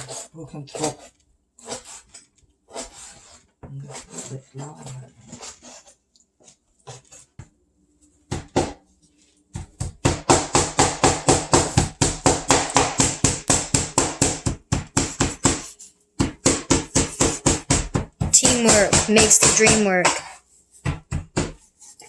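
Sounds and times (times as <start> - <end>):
cleaver chopping on cutting board: 9.6 - 21.6.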